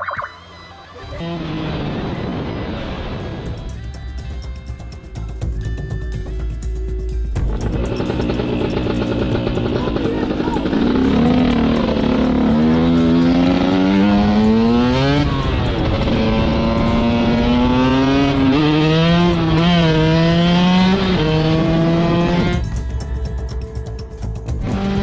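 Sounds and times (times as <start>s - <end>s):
motorcycle engine accelerating: 1.1s - 3.6s, 7.4s - 23.4s, 24.5s - 25.0s.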